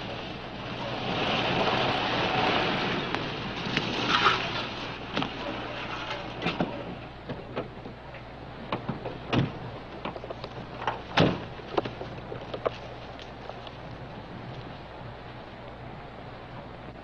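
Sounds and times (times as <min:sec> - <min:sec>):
film soundtrack hiss and hum: 0:00.0 - 0:17.0
footsteps crunching on dry ground: 0:10.2 - 0:15.8.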